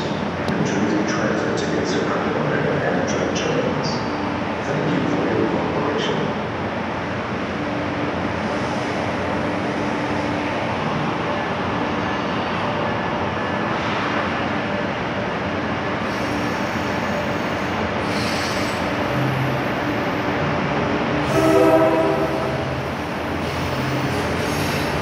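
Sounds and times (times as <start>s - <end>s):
train horn blast: 21.2s - 23.0s.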